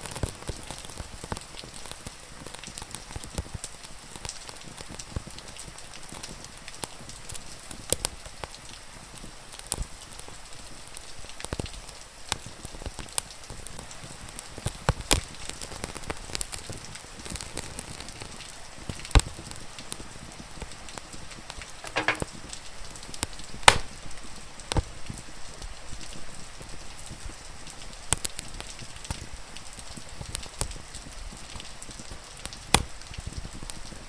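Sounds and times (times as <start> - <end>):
rain hiss: 0.0 - 34.0
wood fire crackling and popping: 0.0 - 34.0.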